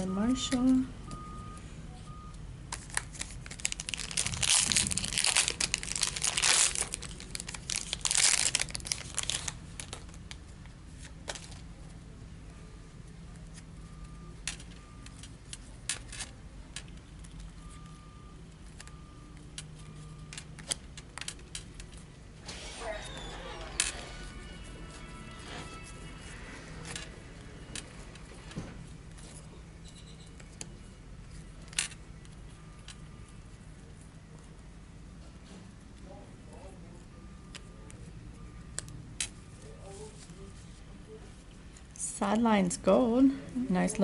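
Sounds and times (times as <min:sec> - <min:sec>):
card pack wrapper tearing: 0:02.7 - 0:10.4
cards clicking and rustling: 0:02.7 - 0:11.8, 0:14.4 - 0:17.8, 0:18.5 - 0:22.1, 0:23.1 - 0:33.1.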